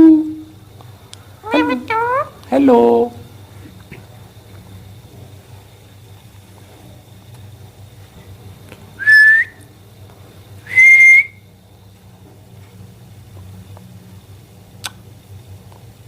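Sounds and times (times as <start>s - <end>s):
parakeet whistling: 9.0s - 9.6s, 10.7s - 11.4s.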